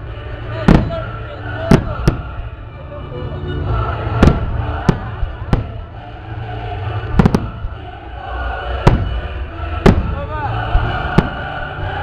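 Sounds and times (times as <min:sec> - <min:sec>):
steady low rumble: 0:00.0 - 0:12.0
fireworks bangs: 0:00.6 - 0:02.5, 0:04.0 - 0:05.9, 0:07.0 - 0:07.9, 0:08.7 - 0:11.6.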